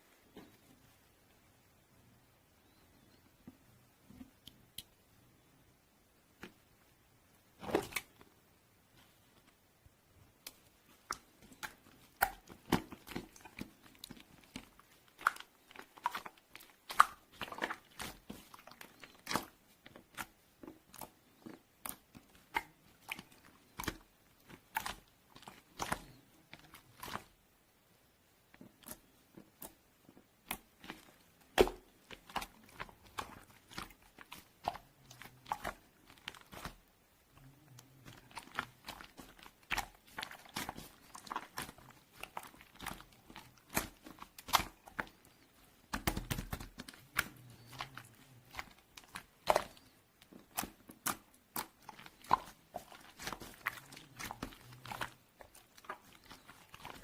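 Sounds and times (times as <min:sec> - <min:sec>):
person chewing crunchy food: 0:37.4 - 0:45.4, 0:46.1 - 0:57.0.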